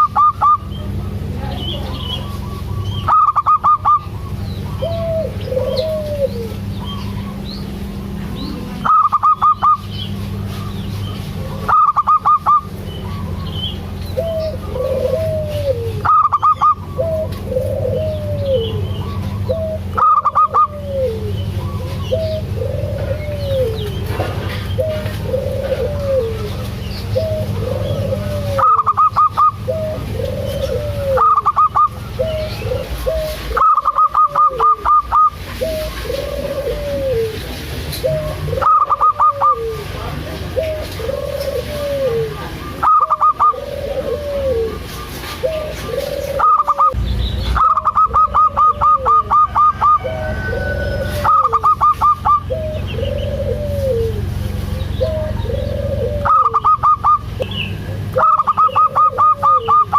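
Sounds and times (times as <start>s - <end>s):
dove cooing: 0.0s - 59.9s
rapid high-pitched bird notes: 1.6s - 22.6s, 26.4s - 36.4s, 38.0s - 39.6s, 44.7s - 50.2s, 50.8s - 53.8s, 56.2s - 59.9s.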